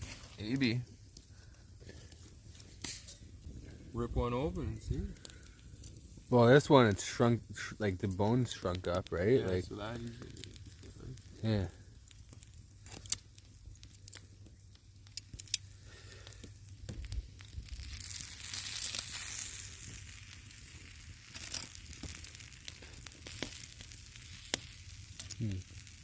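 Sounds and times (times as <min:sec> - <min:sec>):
hissing sizzle: 0:00.0 - 0:26.0
chicken being torn crackling: 0:10.1 - 0:14.3, 0:15.0 - 0:26.0.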